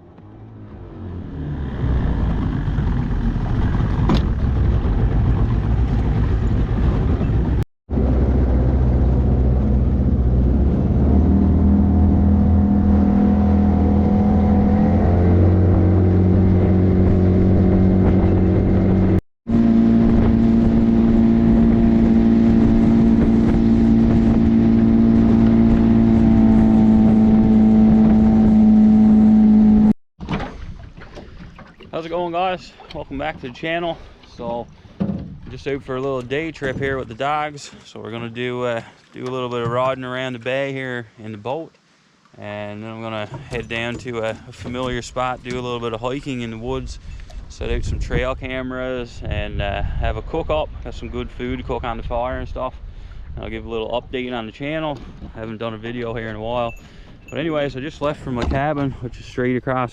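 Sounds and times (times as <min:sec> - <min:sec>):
boat motor droning: 0:00.0 - 0:30.0.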